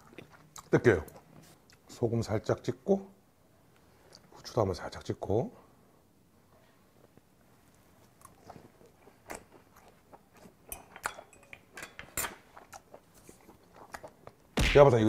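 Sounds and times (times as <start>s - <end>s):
wet mouth chewing smacks: 12.6s - 14.4s.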